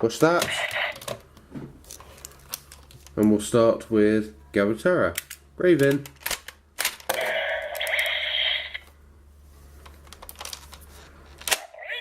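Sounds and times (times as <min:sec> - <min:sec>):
toy speaker sound effect: 0:07.2 - 0:08.8, 0:11.7 - 0:12.0.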